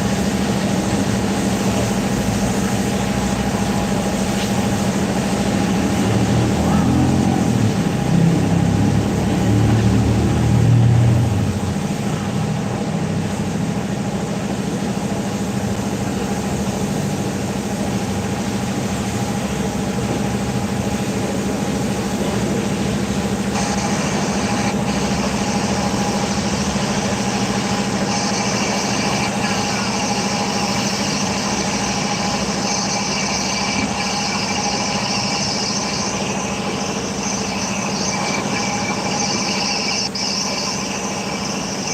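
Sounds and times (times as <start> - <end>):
mechanical hum with hiss: 0.0 - 41.9
higher hiss: 14.5 - 41.9.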